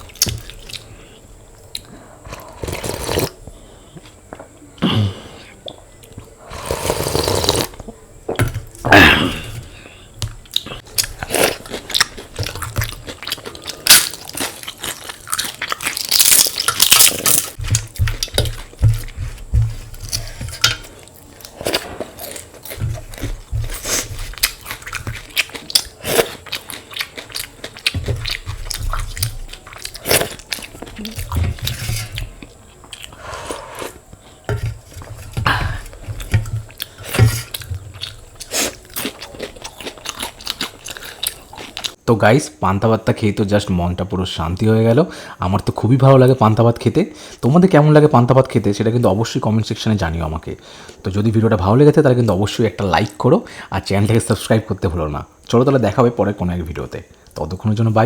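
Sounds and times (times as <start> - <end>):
chewing and crunching food: 0.0 - 3.4, 9.7 - 42.0.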